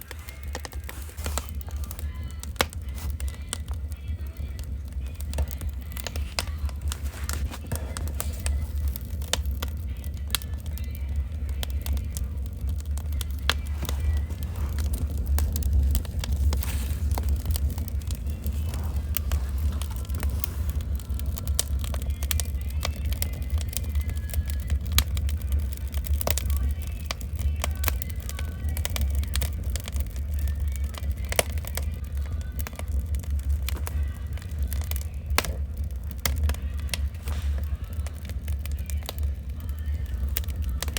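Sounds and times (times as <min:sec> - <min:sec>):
low rumble: 0:00.0 - 0:40.9
wood fire crackling and popping: 0:00.0 - 0:40.9.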